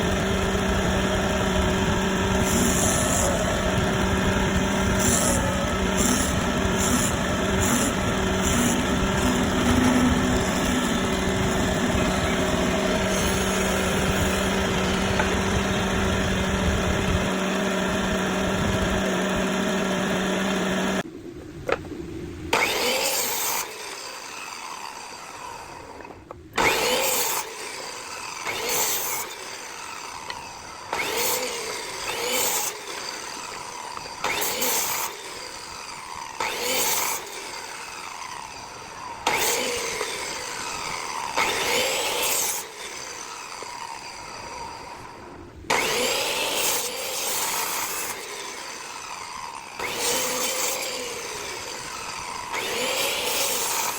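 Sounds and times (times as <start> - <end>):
sanding strokes on wood: 0.0 - 15.7, 26.6 - 53.9
power tool motor running: 0.0 - 21.1, 22.5 - 53.9.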